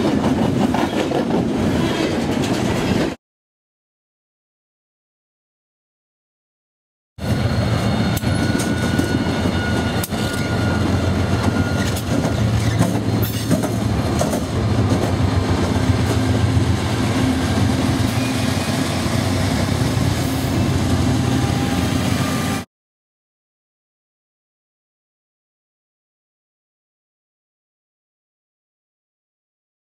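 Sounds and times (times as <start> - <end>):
train cars rumbling on rails: 0.0 - 3.2, 7.2 - 22.6.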